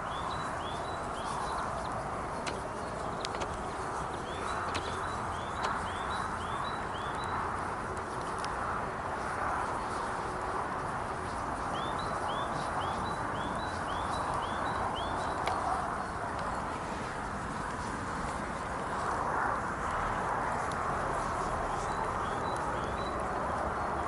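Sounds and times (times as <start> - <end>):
faint clicks: 0.2 - 19.2.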